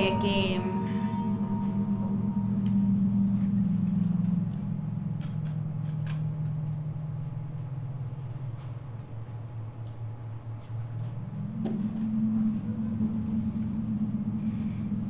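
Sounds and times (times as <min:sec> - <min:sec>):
low droning hum: 0:00.0 - 0:15.0.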